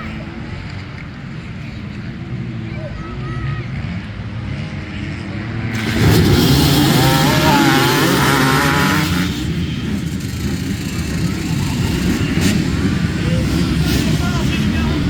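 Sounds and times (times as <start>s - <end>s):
vehicle engines running: 0.0s - 15.0s
engine revving: 4.6s - 15.0s.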